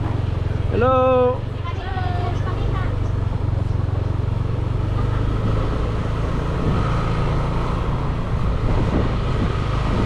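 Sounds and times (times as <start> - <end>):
motorbike engine running: 0.0 - 10.0.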